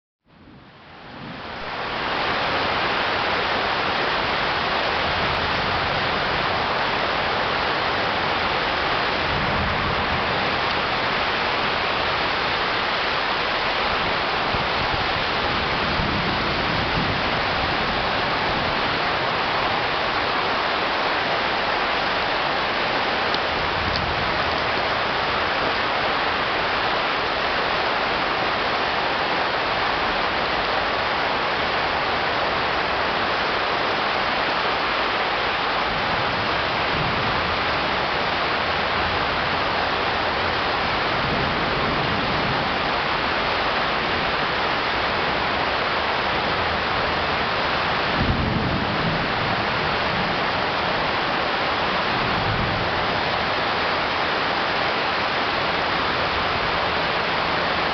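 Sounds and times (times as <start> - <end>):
heavy rain pouring: 0.3 - 57.9
low thunder rumbles: 0.4 - 20.7, 46.3 - 53.9.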